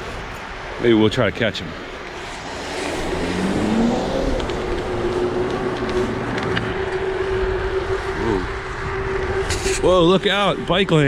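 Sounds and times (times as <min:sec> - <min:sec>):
wind and road noise: 0:00.0 - 0:11.0
hum rising in pitch: 0:02.3 - 0:10.7.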